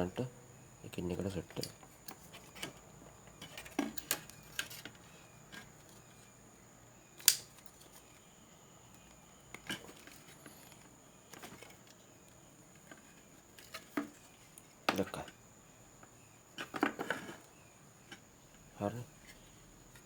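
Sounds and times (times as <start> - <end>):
sharp click: 7.2 - 7.6.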